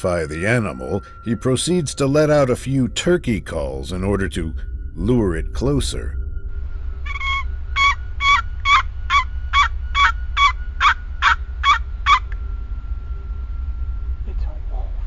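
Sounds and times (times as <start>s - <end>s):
low rumble: 0.0s - 15.0s
turkey call yelps: 7.1s - 12.4s.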